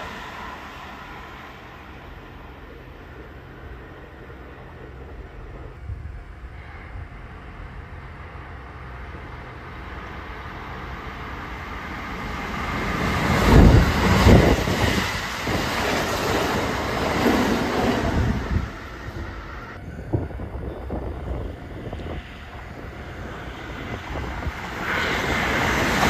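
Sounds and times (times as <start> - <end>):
electric train passing: 0.0 - 26.0.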